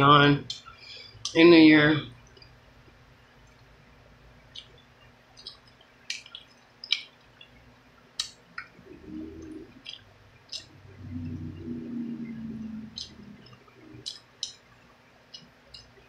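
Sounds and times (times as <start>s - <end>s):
wet mouth clicks and lip smacks: 4.5s - 4.8s, 5.4s - 7.5s, 8.2s - 8.7s, 9.8s - 10.7s, 12.9s - 14.6s.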